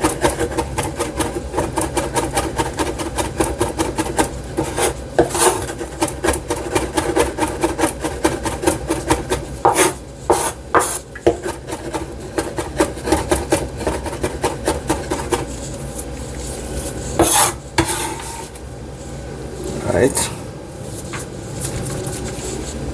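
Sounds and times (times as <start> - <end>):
knife chopping on wooden board: 0.0 - 15.5, 17.2 - 18.1
knife scraping cutting board: 0.0 - 18.6.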